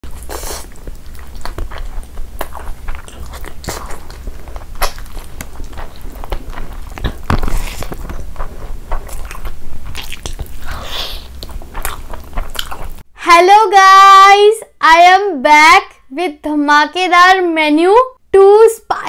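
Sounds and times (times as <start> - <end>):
person chewing food: 0.0 - 13.1
wet mouth clicks and smacks: 0.3 - 13.0.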